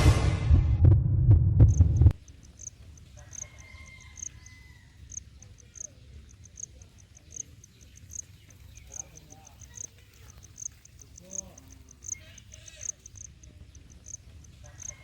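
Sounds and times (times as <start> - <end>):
heavy low thudding beat: 0.0 - 2.2
crickets chirping: 1.7 - 15.0.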